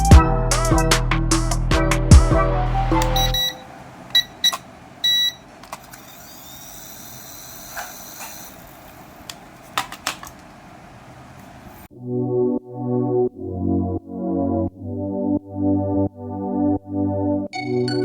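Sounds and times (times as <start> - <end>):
synthesizer and keyboard music: 0.0 - 3.8, 11.9 - 18.0
steady hiss: 2.8 - 11.9
short electronic beep: 3.0 - 3.6
light clicks and knocks: 9.2 - 11.7.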